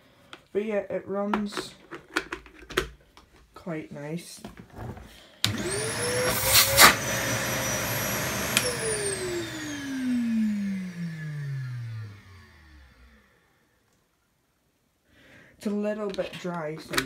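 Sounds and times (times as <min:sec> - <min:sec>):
vacuum cleaner motor whining: 0:05.4 - 0:13.6.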